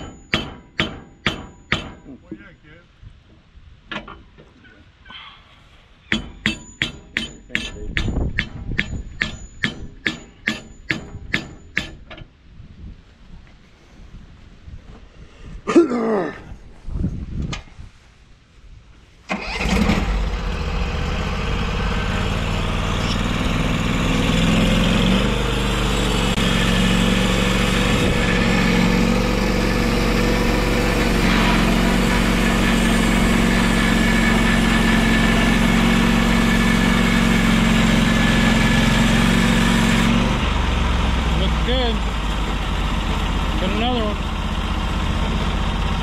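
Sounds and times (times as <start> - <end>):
gas engine running: 19.3 - 46.0.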